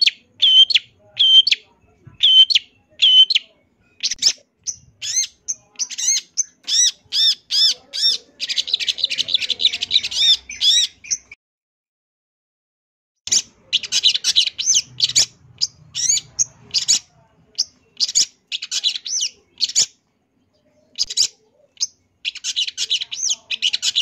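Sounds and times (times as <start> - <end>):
shrike singing: 0.0 - 11.4, 13.3 - 24.0.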